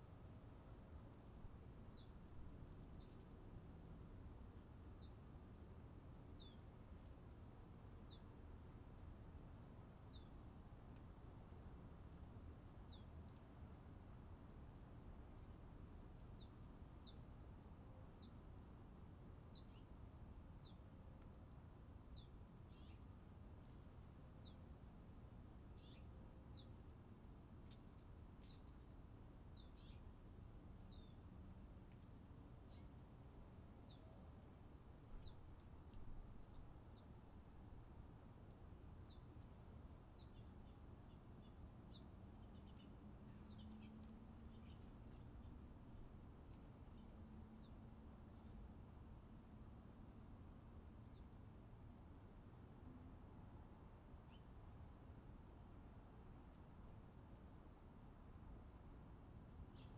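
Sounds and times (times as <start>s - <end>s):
faint background hiss: 0.0s - 59.9s
songbird chirps: 0.6s - 5.6s, 6.2s - 7.4s, 8.0s - 11.1s, 12.8s - 14.6s, 16.2s - 17.3s, 19.4s - 20.0s, 20.6s - 21.4s, 22.0s - 23.8s, 24.4s - 24.7s, 25.7s - 27.0s, 27.6s - 37.7s, 38.4s - 48.7s, 54.2s - 54.6s, 59.7s - 59.9s.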